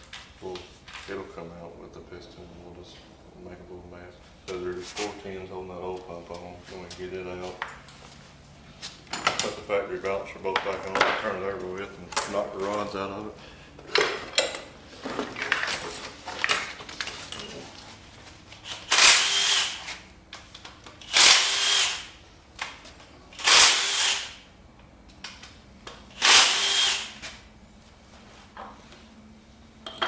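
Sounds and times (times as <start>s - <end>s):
power tool bursts: 18.6s - 19.9s, 21.0s - 22.2s, 23.4s - 24.4s, 26.2s - 27.3s.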